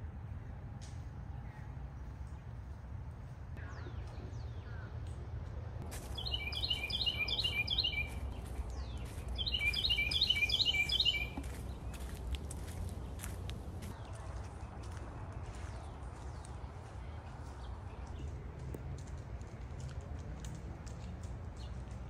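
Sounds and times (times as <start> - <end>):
songbird chirping: 3.6 - 18.8.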